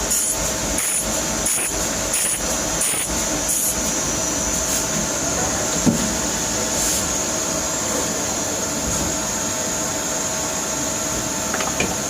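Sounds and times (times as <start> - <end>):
machine tool running with high whine: 0.0 - 12.0.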